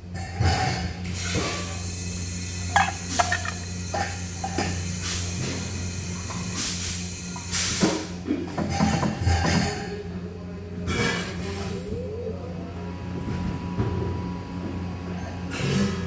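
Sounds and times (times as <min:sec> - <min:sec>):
welding machine humming: 0:01.7 - 0:07.5.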